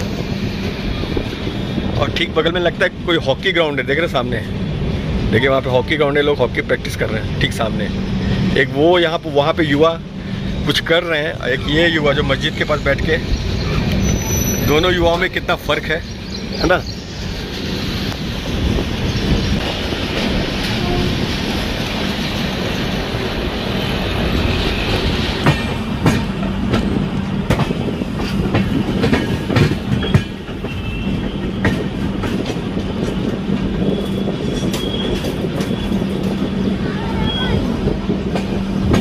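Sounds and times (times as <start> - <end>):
train running rumble: 0.0 - 39.0
faint wheel squeal: 13.6 - 15.0
wheels clacking over rail joints: 13.8 - 36.7, 38.2 - 39.0.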